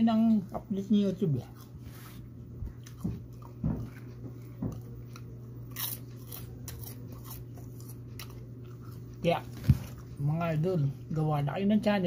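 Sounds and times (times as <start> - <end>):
steady low hum: 0.0 - 12.0
chewing and crunching peanuts: 2.6 - 11.2.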